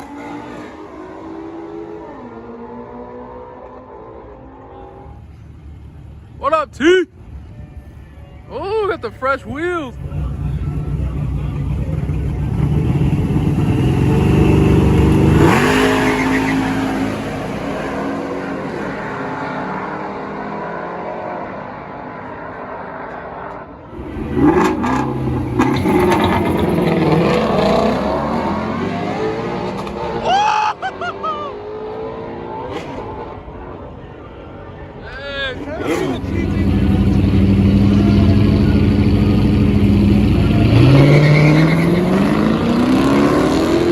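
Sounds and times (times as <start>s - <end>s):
drag racing car engines accelerating: 9.9s - 34.1s, 35.6s - 43.9s.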